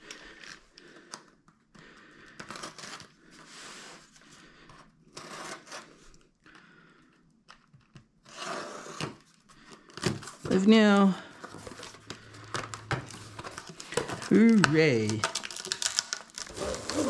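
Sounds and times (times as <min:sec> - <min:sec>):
plastic wrapping crinkling: 0:11.4 - 0:17.0
plastic wrapping tearing: 0:11.7 - 0:17.0.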